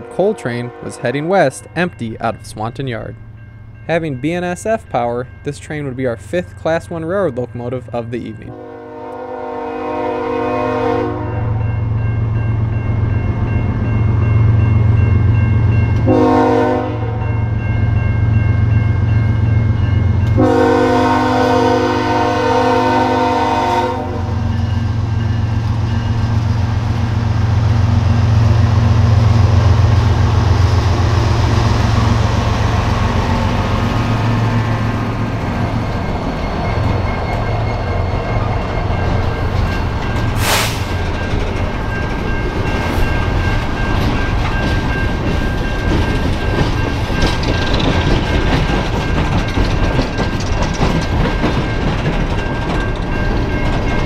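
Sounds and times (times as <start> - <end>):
diesel locomotive engines running: 0.0 - 54.0
train air horn: 8.5 - 11.5, 16.1 - 17.2, 20.4 - 24.4, 40.4 - 40.9
train cars rolling on rails: 17.6 - 54.0.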